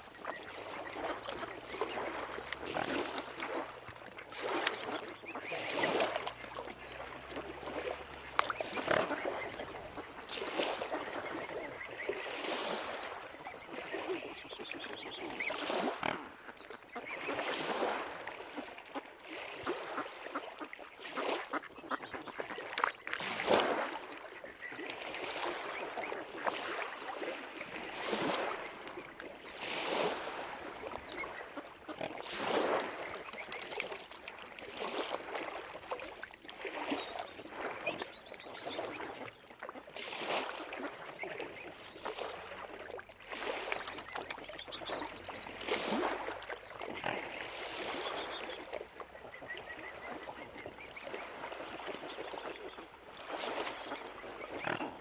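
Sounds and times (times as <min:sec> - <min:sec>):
water lapping: 0:00.0 - 0:55.0
waterfowl calling: 0:00.2 - 0:19.0, 0:19.8 - 0:29.0, 0:29.6 - 0:33.9, 0:43.4 - 0:52.5.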